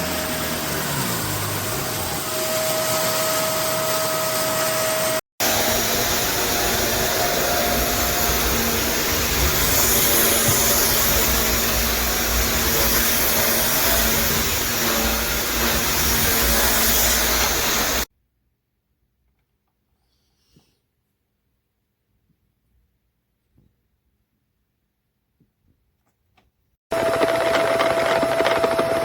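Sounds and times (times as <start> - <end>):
upright vacuum cleaner running: 0.0 - 18.1, 26.9 - 29.0.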